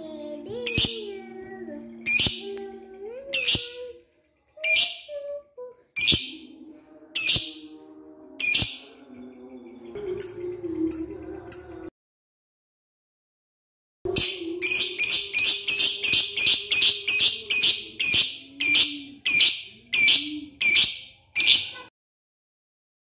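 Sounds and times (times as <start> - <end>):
bird chirps: 0.5 - 11.9, 14.1 - 21.9
bird shrill calls: 14.2 - 21.9.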